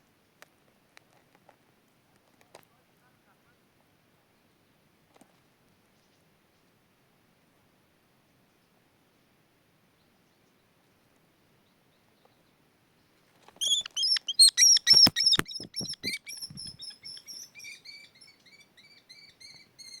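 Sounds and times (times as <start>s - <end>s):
kestrel shrill calls: 13.6s - 20.0s.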